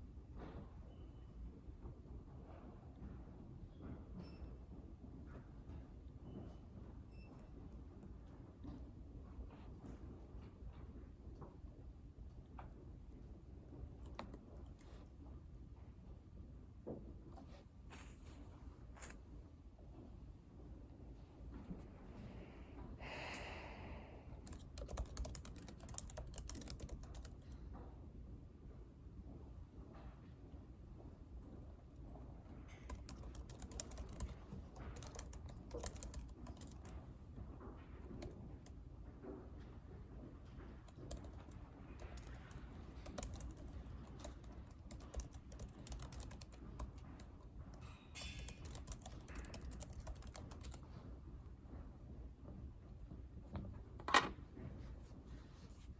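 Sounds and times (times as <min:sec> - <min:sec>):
room hum: 0:00.0 - 0:55.9
keyboard typing: 0:24.4 - 0:27.6, 0:32.7 - 0:37.1, 0:40.8 - 0:50.8.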